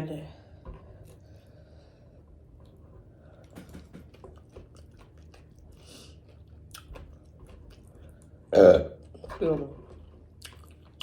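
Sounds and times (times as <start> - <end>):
close chewing crunches: 4.2 - 8.2, 10.4 - 11.0.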